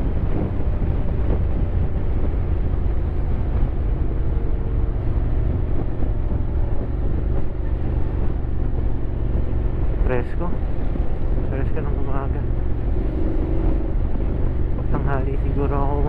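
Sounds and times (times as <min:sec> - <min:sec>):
motorcycle engine droning: 0:12.3 - 0:16.0.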